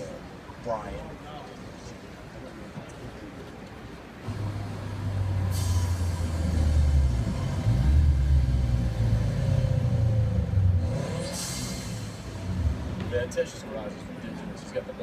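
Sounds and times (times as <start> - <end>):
vehicle engine rumbling: 3.1 - 14.6.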